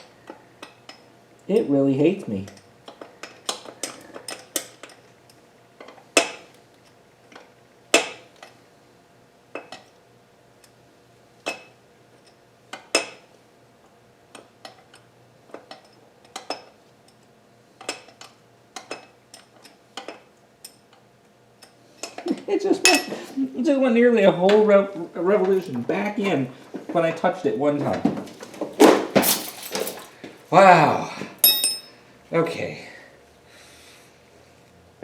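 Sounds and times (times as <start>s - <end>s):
loud metal clanks: 28.8s - 30.1s
wrench clinking on bolt: 31.4s - 32.0s.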